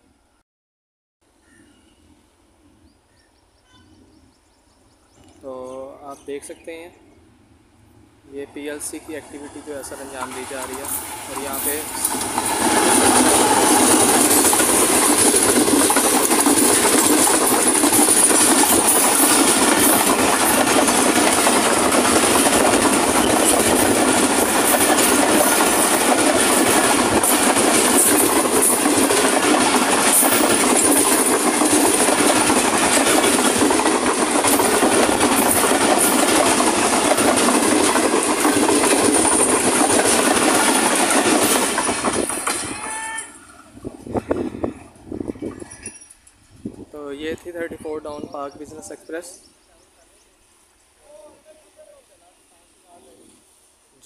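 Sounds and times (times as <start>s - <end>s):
passenger train rushing past: 5.9s - 50.5s
wheels clicking over rail joints: 9.3s - 43.4s, 45.0s - 46.5s.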